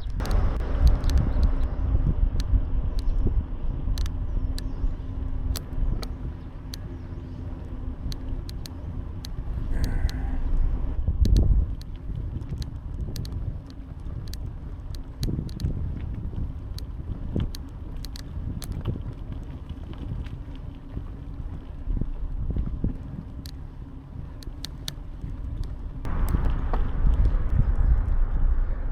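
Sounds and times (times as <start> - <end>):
sharp rattling clicks: 0.0 - 1.7, 2.3 - 15.8, 16.7 - 19.0
road and wind rumble: 0.0 - 28.9.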